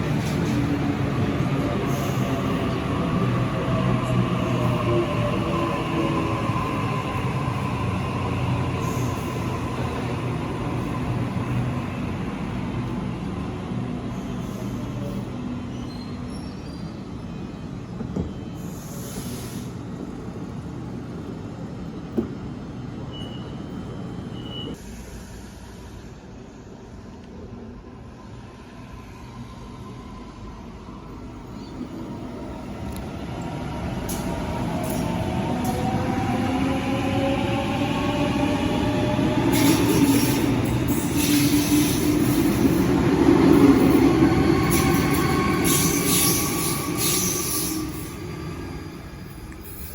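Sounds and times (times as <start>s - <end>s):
electric train rumbling: 0.0s - 49.9s
wheels squealing on rail: 23.1s - 26.0s, 38.7s - 49.9s.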